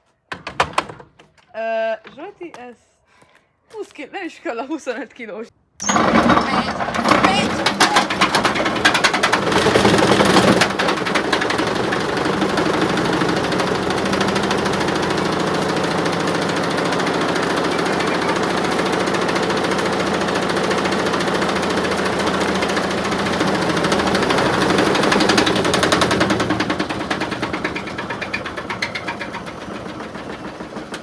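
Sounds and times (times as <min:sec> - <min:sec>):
bricks rattling in drum: 0:05.8 - 0:15.6, 0:16.2 - 0:31.0
drum knocking and vibration: 0:05.8 - 0:31.0
washing machine droning: 0:05.8 - 0:31.0.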